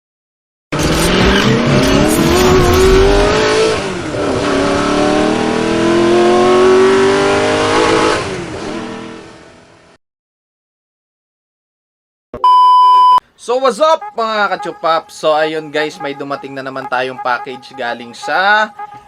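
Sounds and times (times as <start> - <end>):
vehicle engine accelerating hard: 0.8 - 10.0.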